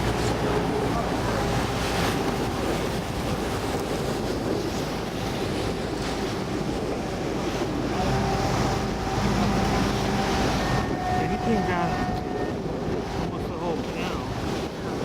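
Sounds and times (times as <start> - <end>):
motorboat engine running: 0.0 - 15.0
water rushing along hull: 0.0 - 15.0
wind on microphone: 0.0 - 15.0.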